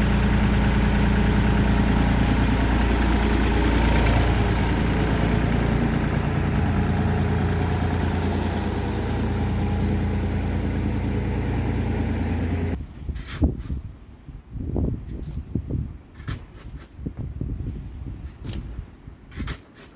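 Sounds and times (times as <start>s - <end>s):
engine idling: 0.0s - 12.8s.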